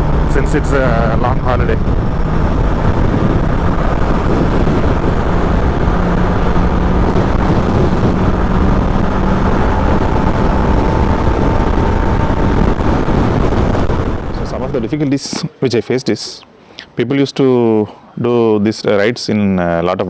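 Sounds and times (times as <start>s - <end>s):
motorcycle engine cruising: 0.0s - 14.9s
wind rush and road noise: 0.0s - 15.5s.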